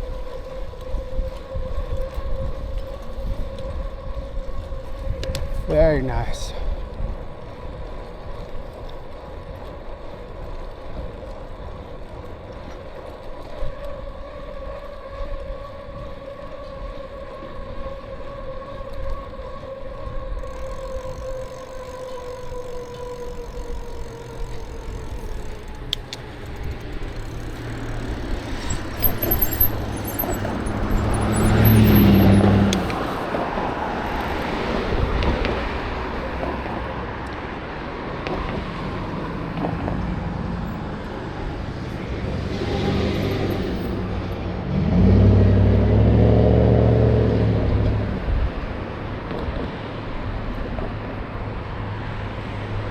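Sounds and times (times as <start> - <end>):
wind and road noise: 0.0 - 52.9
vehicle passing close by: 20.1 - 52.9.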